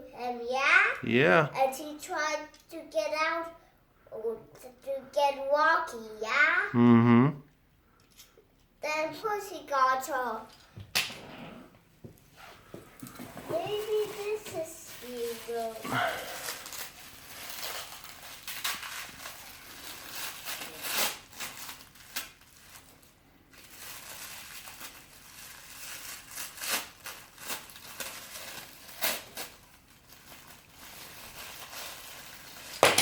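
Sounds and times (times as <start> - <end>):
wrapping crinkling and rustling: 12.4 - 33.0
wrapping tearing: 13.5 - 33.0.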